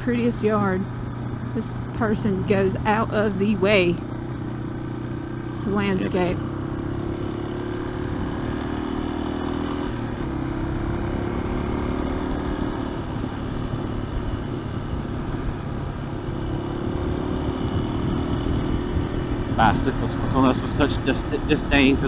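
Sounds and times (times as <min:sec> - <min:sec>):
motorcycle engine running: 0:00.0 - 0:22.0
riding wind noise: 0:12.4 - 0:22.0.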